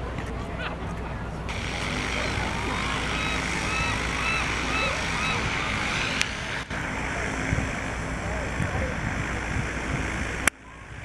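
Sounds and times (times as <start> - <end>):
low engine hum: 0.0 - 11.0
rising and falling chirps: 2.3 - 6.7.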